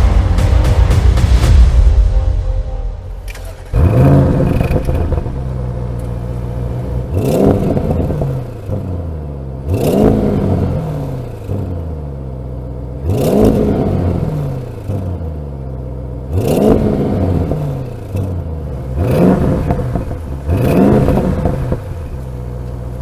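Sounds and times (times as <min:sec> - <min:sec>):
car engine idling and revving: 0:03.2 - 0:23.0.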